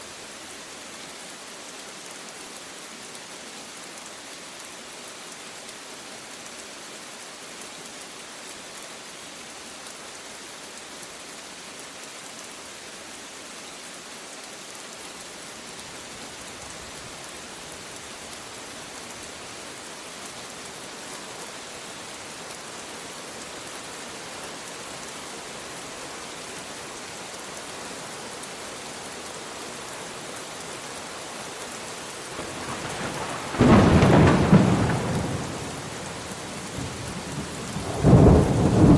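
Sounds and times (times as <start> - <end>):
steady rain: 0.0 - 38.9
low thunder rumble: 32.4 - 36.0, 36.8 - 38.9.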